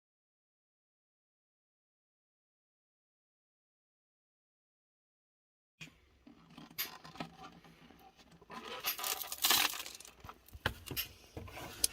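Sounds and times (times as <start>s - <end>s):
scraping or rustling: 6.3s - 11.9s.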